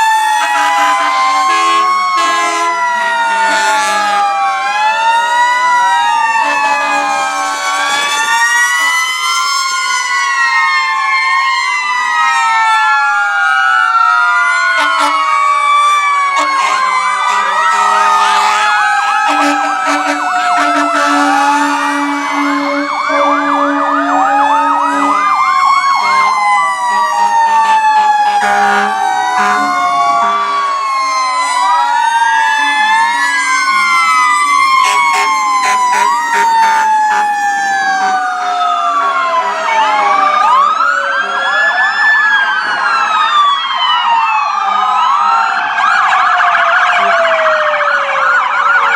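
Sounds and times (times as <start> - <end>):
fire engine sirens wailing: 0.0 - 48.9
low horn tones: 0.4 - 4.3, 6.2 - 9.0, 15.9 - 30.8, 34.6 - 40.4.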